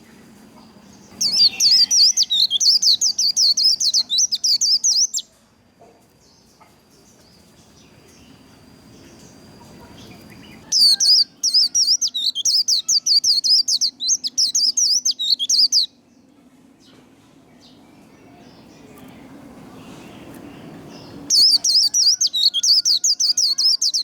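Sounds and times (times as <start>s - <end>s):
bird twittering song: 0.0s - 5.3s, 6.2s - 24.0s.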